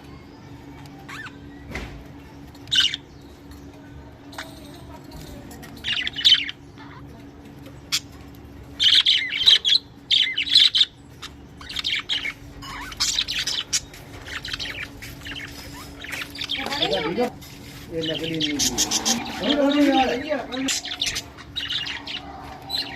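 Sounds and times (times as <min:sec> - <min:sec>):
budgerigars chirping: 0:02.7 - 0:03.2, 0:05.8 - 0:06.7, 0:08.8 - 0:22.9.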